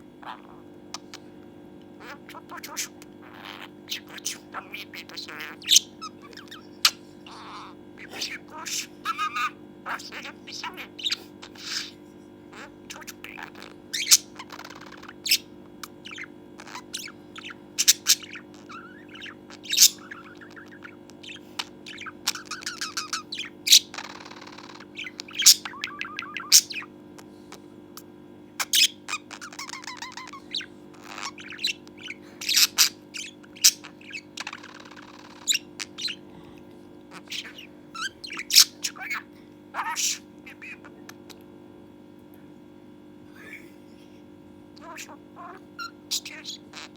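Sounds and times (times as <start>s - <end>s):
budgerigar chattering and warbling: 0.2s - 1.3s, 2.0s - 27.3s, 28.0s - 36.3s, 37.1s - 41.4s, 44.8s - 46.9s
harsh scratchy bird call: 16.1s - 26.9s.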